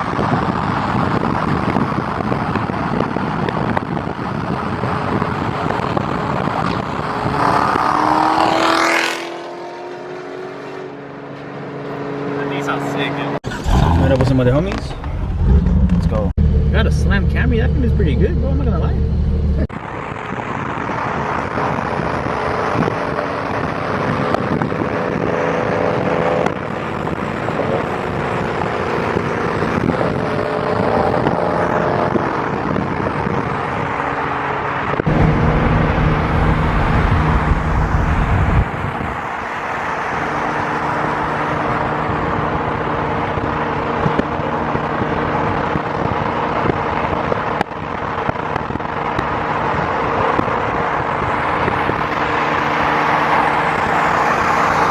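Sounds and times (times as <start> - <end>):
car engines: 0.0 - 54.9
road noise: 0.0 - 54.9
deep engine rumble: 13.3 - 21.2, 34.9 - 40.4.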